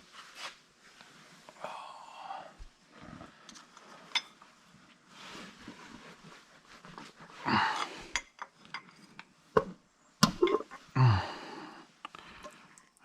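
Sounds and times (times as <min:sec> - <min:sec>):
effortful breaths: 0:06.9 - 0:08.4, 0:10.7 - 0:13.0
metal tools clinking and knocking: 0:07.7 - 0:09.4.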